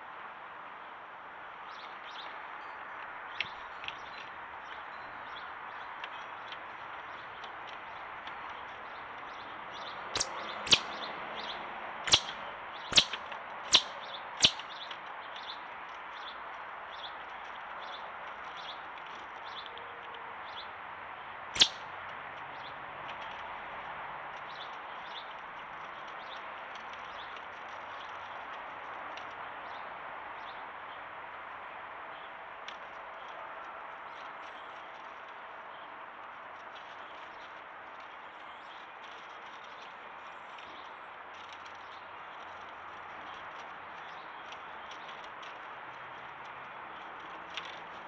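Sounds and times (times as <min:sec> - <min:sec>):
small birds chirping: 0:03.4 - 0:19.7, 0:21.6 - 0:21.8
loud sharp downward chirps: 0:12.1 - 0:12.3, 0:12.9 - 0:14.6, 0:21.6 - 0:21.8.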